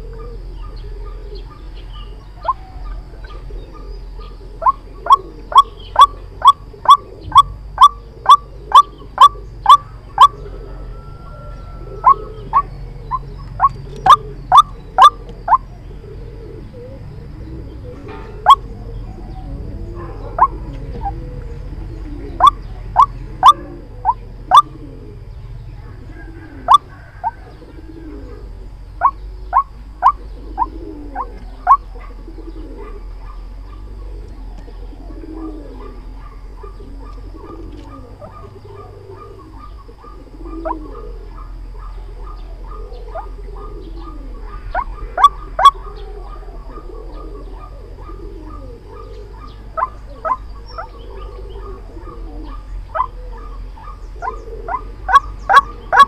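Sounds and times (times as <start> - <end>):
loud sharp bird calls: 0.0 - 56.0
soft low repeated bird notes: 0.0 - 56.0
fast chatter of ticks: 12.5 - 15.7.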